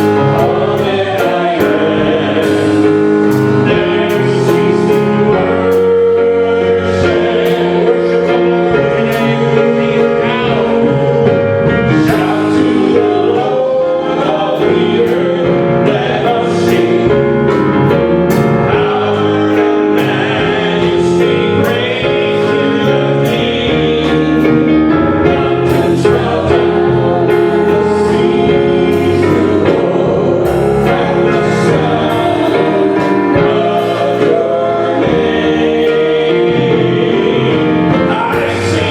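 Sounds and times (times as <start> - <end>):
instrumental accompaniment: 0.0 - 38.9
voices singing gospel song: 0.0 - 38.9.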